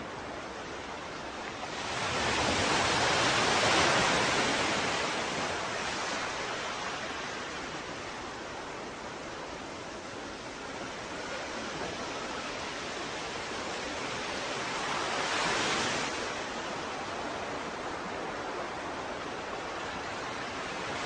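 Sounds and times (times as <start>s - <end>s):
ocean waves breaking: 0.0s - 21.0s.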